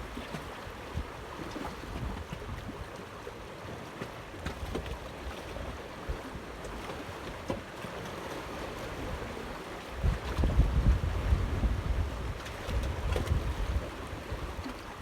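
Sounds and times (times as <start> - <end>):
water lapping around boat: 0.0 - 15.0
wind on microphone: 8.9 - 15.0.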